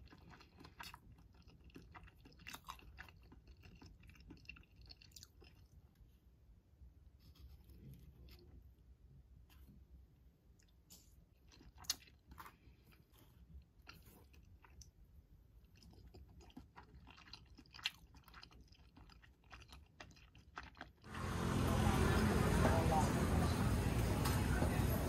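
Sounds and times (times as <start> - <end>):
wet chewing sounds: 0.0 - 6.1, 10.5 - 22.1
loud street noise: 21.1 - 25.0.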